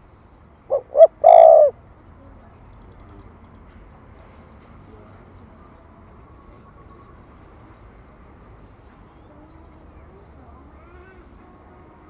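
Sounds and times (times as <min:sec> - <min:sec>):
distant bird calls: 0:00.0 - 0:01.8
insects: 0:00.0 - 0:12.0.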